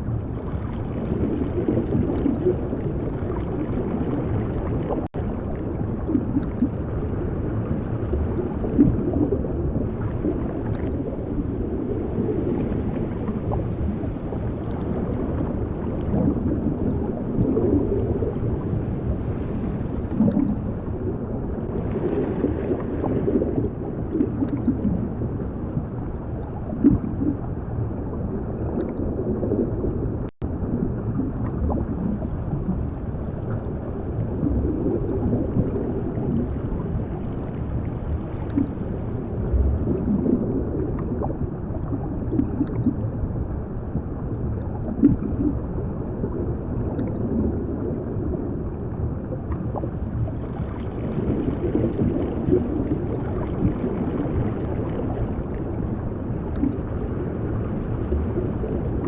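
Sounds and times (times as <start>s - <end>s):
bubbling and gurgling: 0.0s - 59.0s
muffled underwater rumble: 0.0s - 59.0s.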